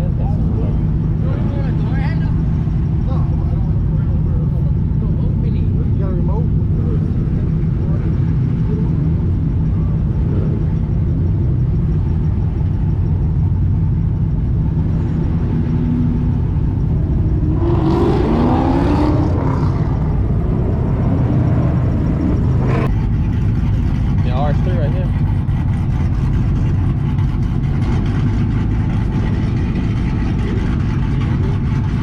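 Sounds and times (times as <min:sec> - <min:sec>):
car engine running: 0:00.0 - 0:32.0
engine revving: 0:14.2 - 0:32.0.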